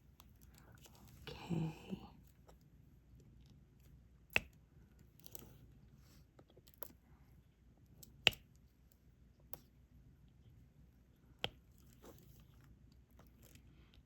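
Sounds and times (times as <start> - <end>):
soft rustle of handling: 0.1 - 4.0, 11.6 - 14.0.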